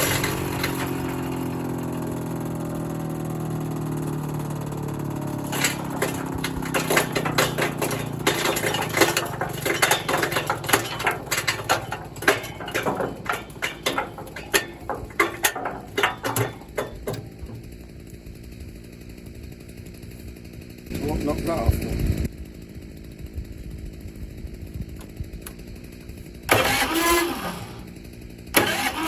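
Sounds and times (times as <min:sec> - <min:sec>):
wood chipping cracks and knocks: 0:00.0 - 0:02.0, 0:05.0 - 0:17.9
shredder motor humming: 0:00.0 - 0:18.2, 0:26.5 - 0:27.9, 0:28.6 - 0:29.0.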